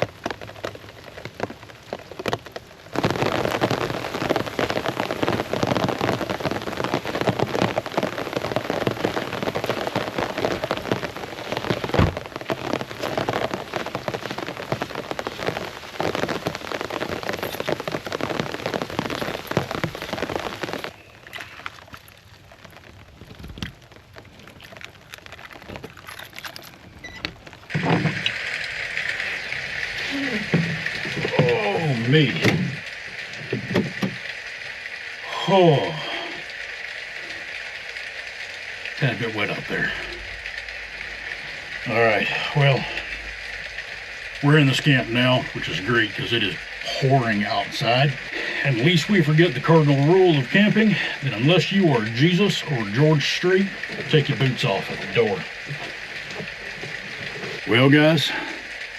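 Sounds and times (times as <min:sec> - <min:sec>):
heavy rain pouring: 0:00.0 - 0:58.9.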